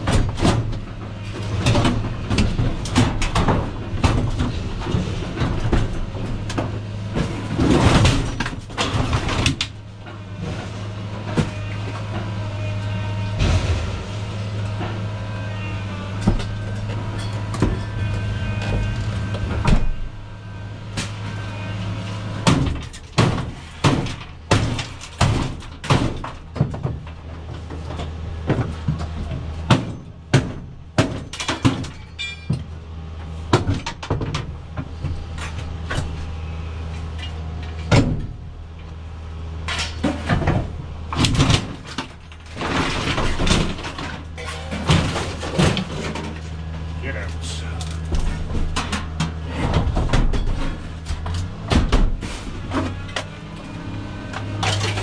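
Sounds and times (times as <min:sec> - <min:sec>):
scrap metal bangs and clanks: 0:00.0 - 0:38.7, 0:39.6 - 0:55.0
engine running: 0:00.0 - 0:55.0.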